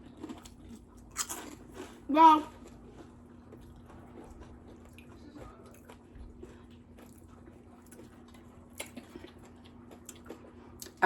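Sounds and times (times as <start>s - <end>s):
chewing and wet mouth clicks: 3.0s - 11.0s.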